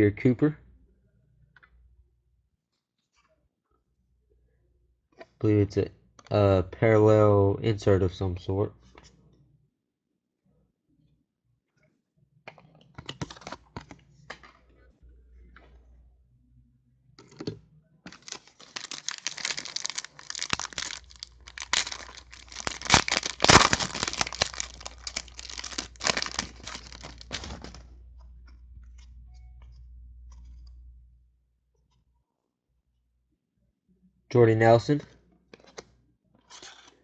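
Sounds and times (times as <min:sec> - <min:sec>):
foil wrapper tearing and crinkling: 0:18.1 - 0:27.8.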